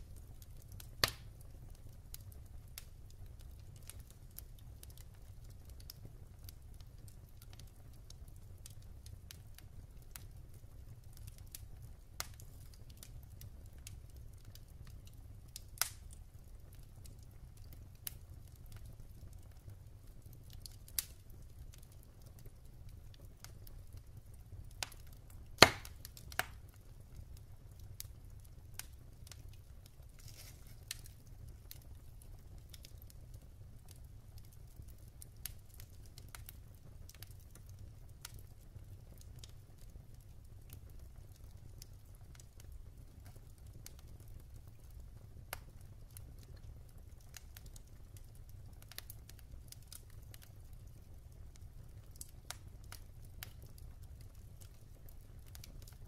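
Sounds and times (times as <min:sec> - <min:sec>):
fire low rumble: 0:00.0 - 0:56.0
wood fire crackling: 0:00.0 - 0:56.0.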